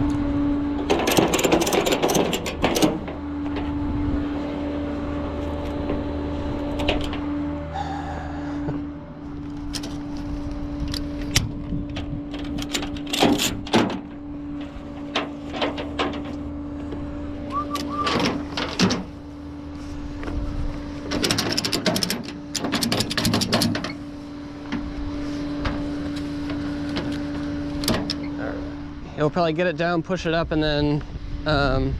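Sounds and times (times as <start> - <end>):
tow truck engine hum: 0.0 - 29.2
metal clanks and rattles: 0.8 - 3.8, 6.6 - 7.3, 9.6 - 10.2, 10.9 - 16.5, 17.5 - 19.2, 21.0 - 24.0, 25.6 - 28.3.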